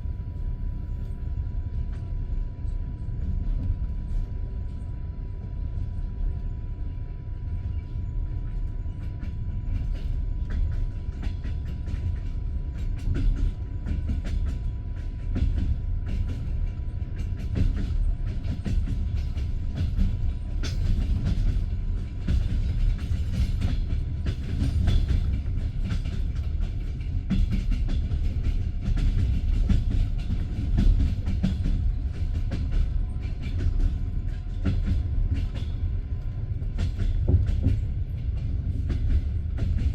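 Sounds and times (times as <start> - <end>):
train carriage rumbling: 0.0 - 39.9
train wheels clattering over rail joints: 9.0 - 39.9.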